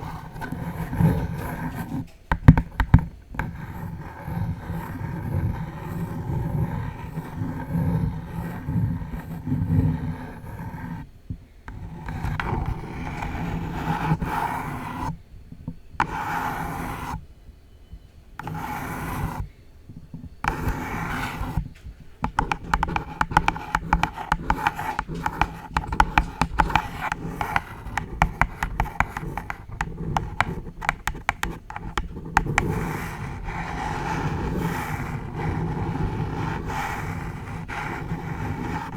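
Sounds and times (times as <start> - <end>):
nails scratching a box: 11.7 - 15.2, 16.0 - 17.2, 18.4 - 19.5, 20.4 - 38.9
nails tapping sharp clicks: 22.2 - 32.7.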